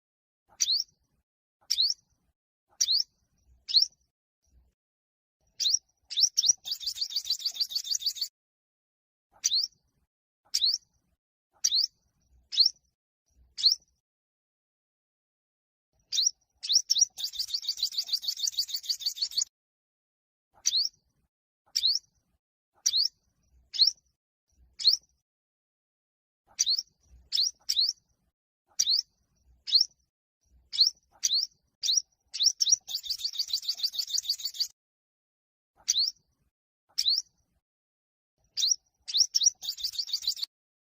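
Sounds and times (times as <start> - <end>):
bird singing trills and chirps: 0.5 - 1.0, 1.6 - 4.1, 5.4 - 8.3, 9.3 - 11.0, 11.6 - 14.0, 16.0 - 19.5, 20.6 - 21.1, 21.7 - 22.2, 22.8 - 25.2, 26.5 - 28.1, 28.7 - 34.8, 35.8 - 36.3, 36.9 - 37.4, 38.4 - 40.5.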